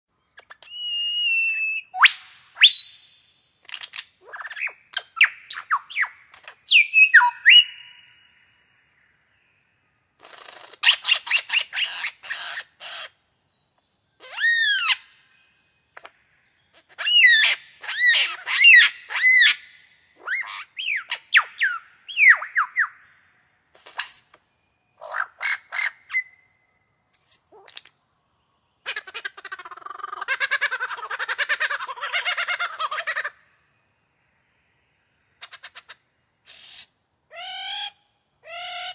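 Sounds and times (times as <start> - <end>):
bird mimicking varied calls: 0.4 - 8.3, 28.8 - 33.5.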